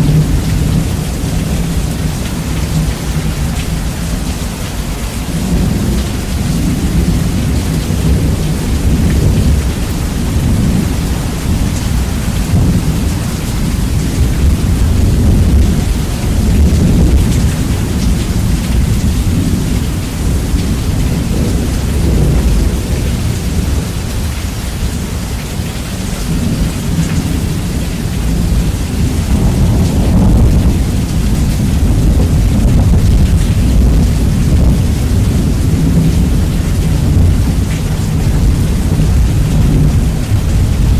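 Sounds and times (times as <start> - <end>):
distorted thunder rumble: 0.0 - 40.9
heavy rain hissing: 0.0 - 40.9.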